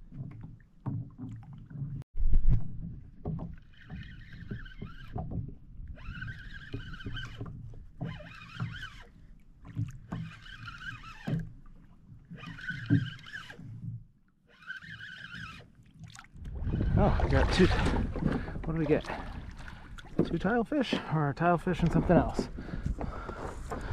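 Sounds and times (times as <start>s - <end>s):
water and handling noise: 0.0s - 23.9s
fishing reel whining: 3.7s - 5.3s, 5.9s - 9.2s, 10.1s - 11.5s, 12.3s - 13.8s, 14.5s - 15.8s.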